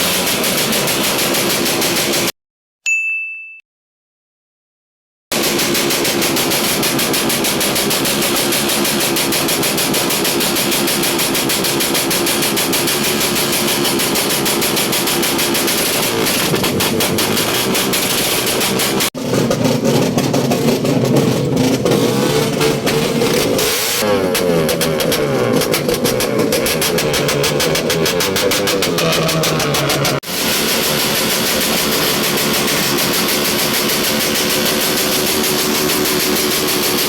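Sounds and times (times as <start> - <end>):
motorcycle engine running: 0.0 - 2.3, 5.3 - 37.0.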